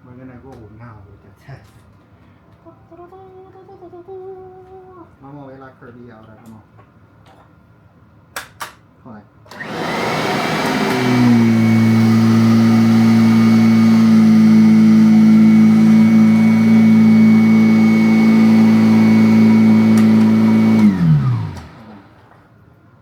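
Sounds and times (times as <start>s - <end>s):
vacuum motor winding down: 9.5s - 22.5s
vacuum cleaner running: 9.5s - 22.6s.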